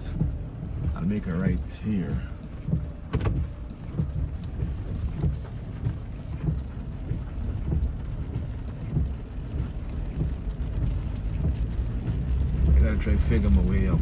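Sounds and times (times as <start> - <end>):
car cabin road and engine rumble: 0.0 - 14.0.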